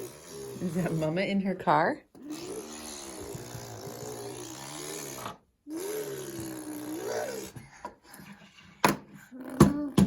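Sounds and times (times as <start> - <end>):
child imitating car engine: 5.6 - 7.6, 9.3 - 10.0
child breathing: 7.3 - 9.5.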